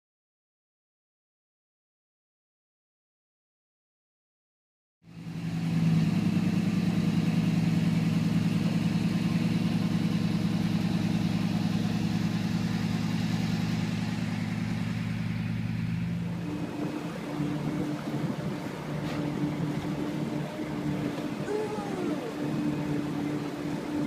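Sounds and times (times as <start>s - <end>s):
boat motor droning: 5.1s - 24.0s.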